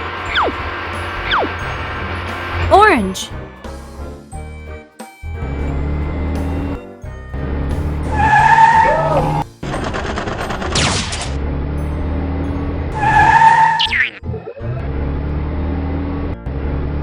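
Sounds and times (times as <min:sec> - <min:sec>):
background music: 0:00.0 - 0:15.2
cartoon skid squeals: 0:08.2 - 0:09.4, 0:13.0 - 0:14.2.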